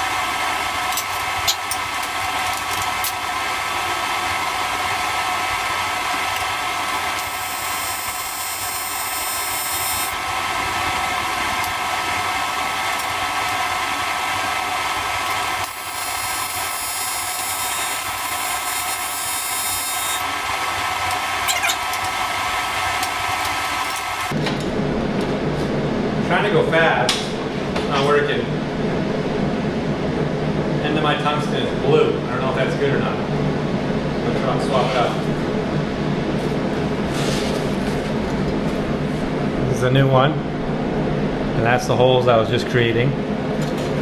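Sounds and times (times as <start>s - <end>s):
welding arc buzzing: 0.0s - 24.4s.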